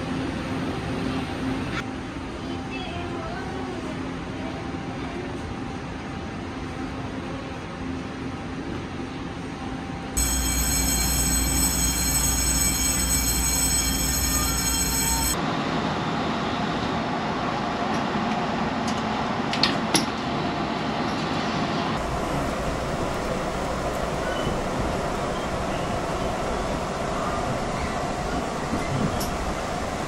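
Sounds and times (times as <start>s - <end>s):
train rolling on rails: 0.0s - 30.0s
high whining tones: 10.2s - 15.4s.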